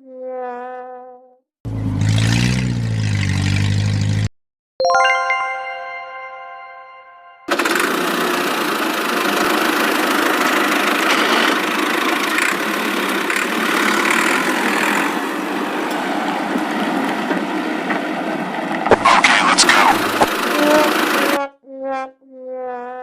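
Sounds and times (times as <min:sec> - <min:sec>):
vehicle engine running: 0:07.5 - 0:21.4.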